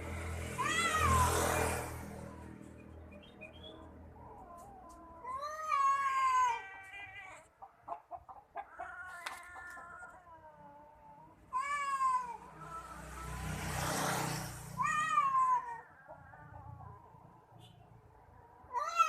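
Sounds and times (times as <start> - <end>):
cats yowling in a fight: 0.6 - 1.9, 4.1 - 7.5, 8.6 - 13.4, 14.8 - 16.0, 18.5 - 19.0.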